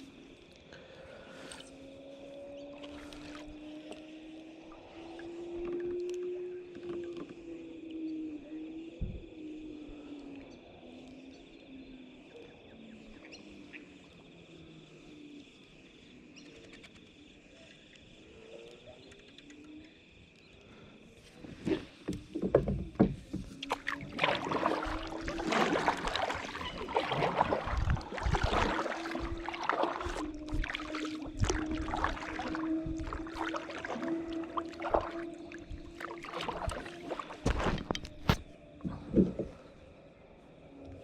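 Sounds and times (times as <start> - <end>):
water lapping: 2.6 - 5.9, 20.7 - 40.0
water splashing against kayak: 21.1 - 40.0.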